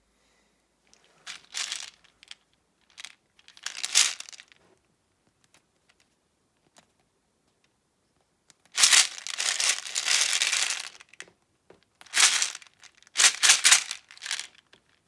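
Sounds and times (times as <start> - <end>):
packaging crinkling: 8.8 - 11.2, 12.1 - 14.6.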